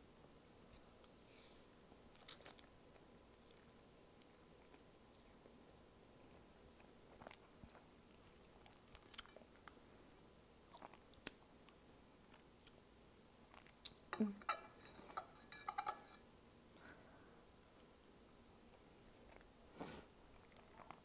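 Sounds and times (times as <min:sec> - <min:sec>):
chewing noodles: 0:06.7 - 0:09.8, 0:10.7 - 0:12.8.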